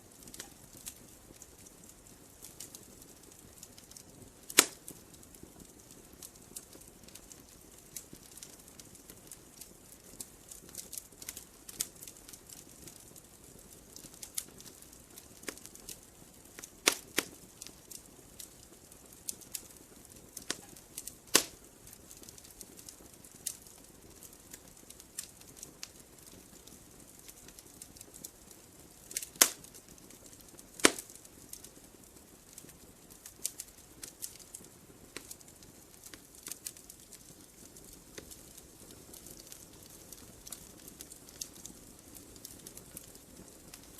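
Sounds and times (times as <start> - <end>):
faint steady hiss: 0.0 - 43.9
wood fire crackling and popping: 0.0 - 43.9.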